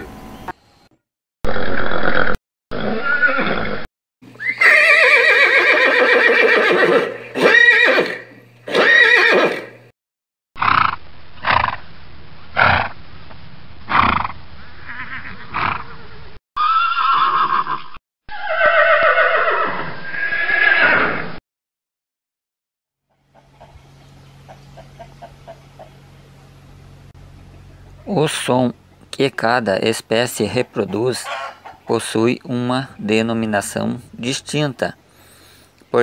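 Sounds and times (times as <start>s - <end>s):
horses whinnying: 1.5s - 9.8s, 13.9s - 21.3s, 31.2s - 31.8s.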